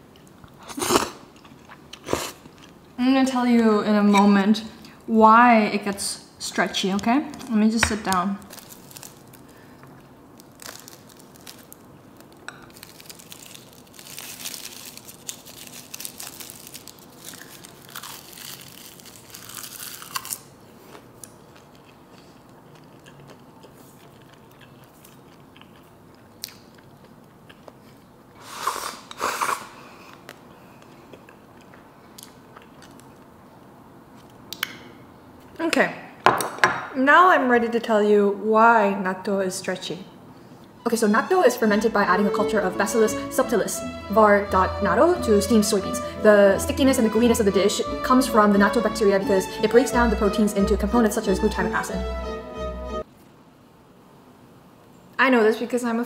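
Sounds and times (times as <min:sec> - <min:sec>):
close-up chewing with crackling bites: 0:00.2 - 0:03.0, 0:08.4 - 0:28.3, 0:30.0 - 0:34.4.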